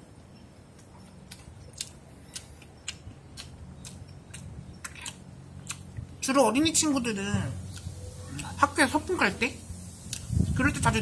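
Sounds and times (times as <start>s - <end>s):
person chewing with wet clicks: 0.1s - 6.2s, 7.6s - 8.8s, 10.0s - 10.4s.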